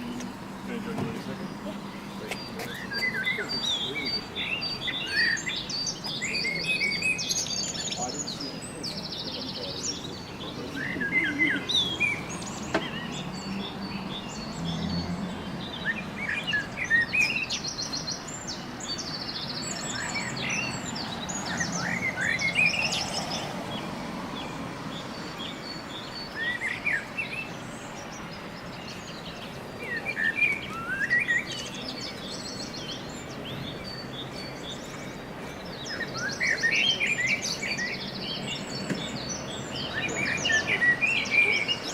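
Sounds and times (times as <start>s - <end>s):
small birds chirping and trilling: 0.0s - 41.9s.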